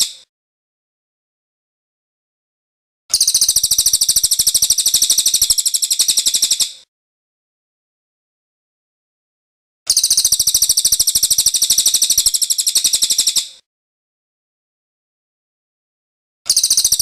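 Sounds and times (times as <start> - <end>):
bird singing a rapid trill: 3.1 - 6.8, 9.9 - 13.5, 16.5 - 17.0.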